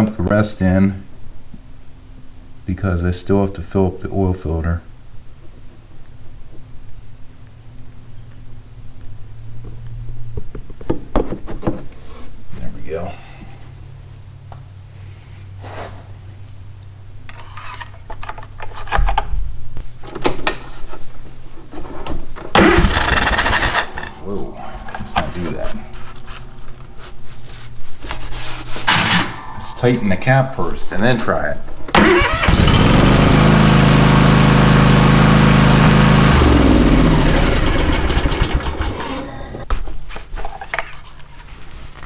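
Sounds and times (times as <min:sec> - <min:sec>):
riding mower engine running: 0:22.5 - 0:25.4, 0:31.9 - 0:39.6
loud rush of noise: 0:22.8 - 0:26.2.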